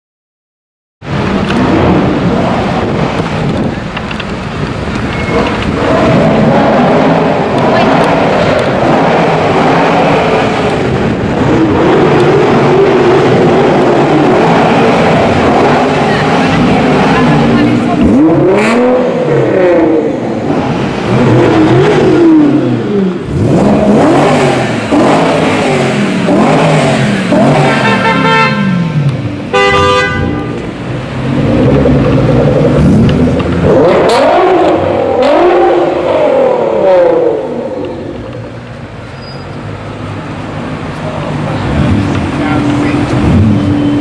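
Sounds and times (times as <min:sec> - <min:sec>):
car engine revving: 0:01.0 - 0:39.0, 0:39.7 - 0:44.0
car horn blasts: 0:27.6 - 0:28.8, 0:29.5 - 0:30.6.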